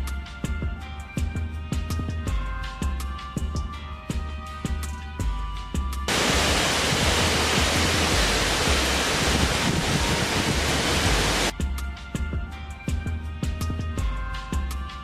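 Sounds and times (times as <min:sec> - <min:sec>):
low background music: 0:00.0 - 0:15.0
loud steady rushing noise: 0:06.1 - 0:11.5.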